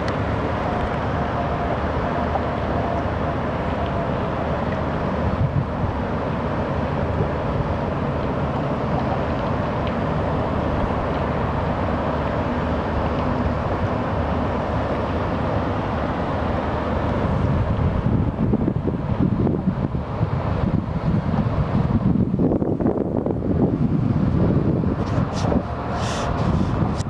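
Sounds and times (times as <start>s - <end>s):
faint motor hum: 0.0s - 27.0s
water and wind rushing: 0.0s - 27.0s.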